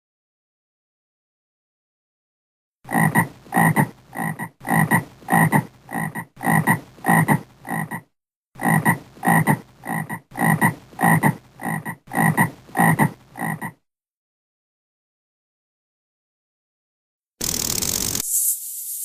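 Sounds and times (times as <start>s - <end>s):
frog croaking: 2.9s - 13.8s.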